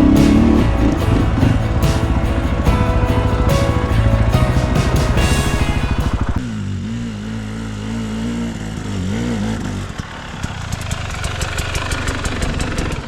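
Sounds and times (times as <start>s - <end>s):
loud sound: 0.0s - 6.7s.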